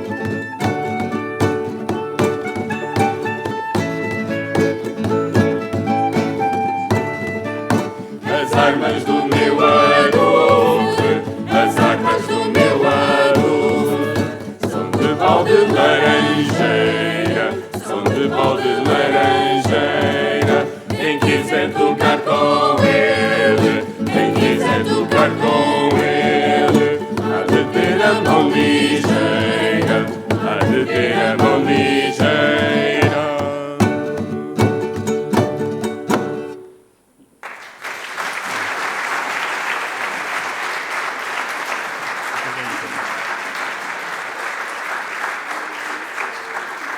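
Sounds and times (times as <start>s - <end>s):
plucked strings: 0.0s - 36.8s
vocal ensemble singing: 7.7s - 35.2s.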